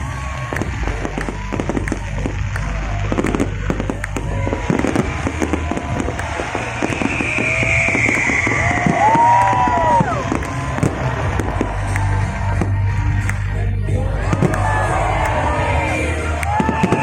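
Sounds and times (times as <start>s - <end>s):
fireworks whistling: 0.0s - 13.5s, 14.3s - 17.0s
fireworks bangs and crackles: 0.0s - 17.0s.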